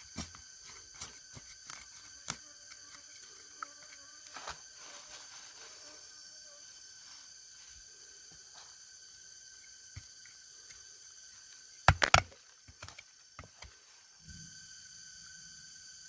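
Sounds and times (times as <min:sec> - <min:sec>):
buzzing insect chorus: 0:00.0 - 0:16.0.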